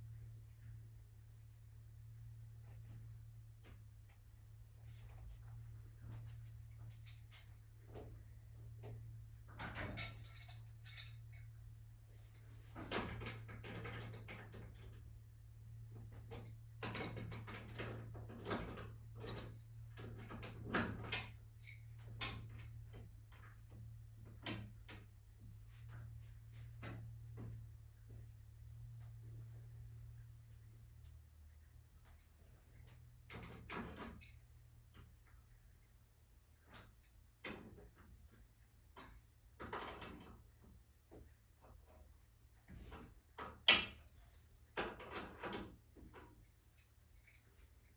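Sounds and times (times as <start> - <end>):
metallic clinks and rattles of tools: 6.0 - 8.0, 8.8 - 11.6, 12.2 - 15.0, 16.2 - 25.2, 31.6 - 35.1, 36.7 - 38.1, 39.0 - 40.4, 42.9 - 47.9.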